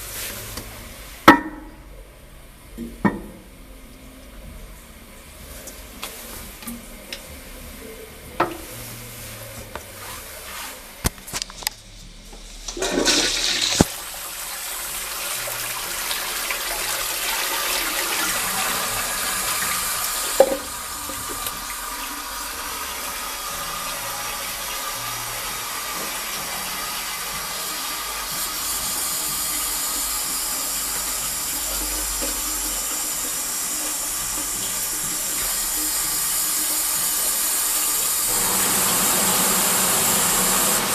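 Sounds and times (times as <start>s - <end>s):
toilet flushing water rush: 0.0s - 3.8s, 12.5s - 40.9s
toilet clicks: 19.2s - 22.1s.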